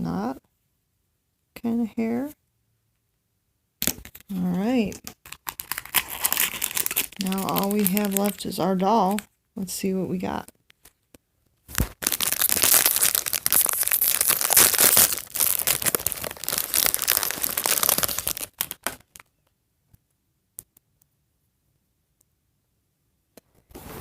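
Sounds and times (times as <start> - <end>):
plastic packaging tearing and crinkling: 5.0 - 9.2, 11.7 - 19.3.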